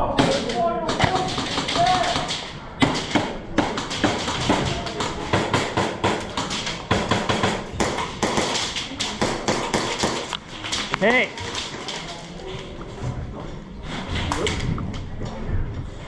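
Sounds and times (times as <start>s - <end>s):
sharp irregular taps and knocks: 0.2s - 12.0s.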